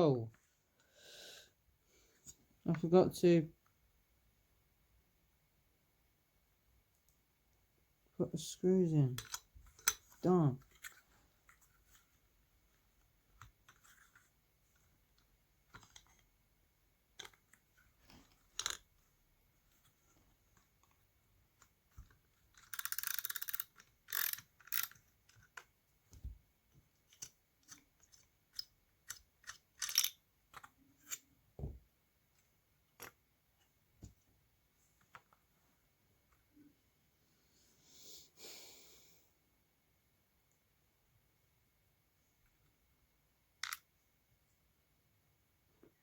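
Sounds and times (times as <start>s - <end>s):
small metal parts clicking: 9.2s - 11.0s, 18.5s - 18.8s, 22.0s - 25.6s, 27.1s - 31.2s, 43.6s - 43.8s.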